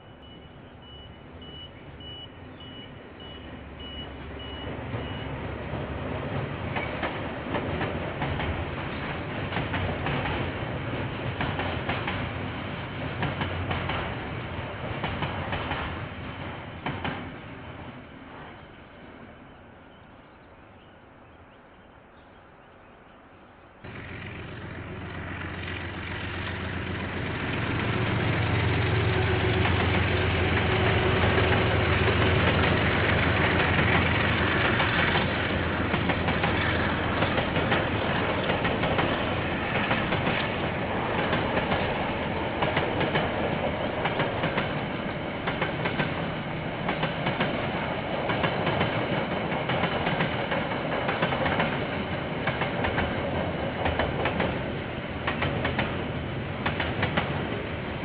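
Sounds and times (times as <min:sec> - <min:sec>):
locomotive engine hum: 0:23.6 - 0:58.0
wagon wheels clattering on rail: 0:28.5 - 0:56.0.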